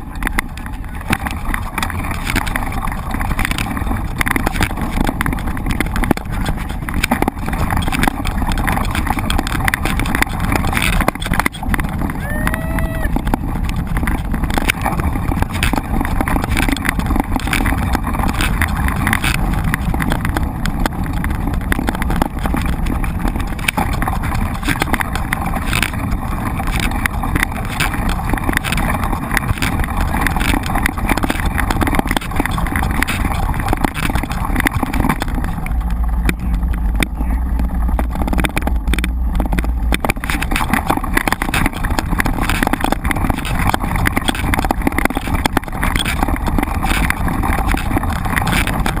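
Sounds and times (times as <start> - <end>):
bike rattling and knocking: 0.0 - 49.0
wind rumble on microphone: 0.0 - 49.0.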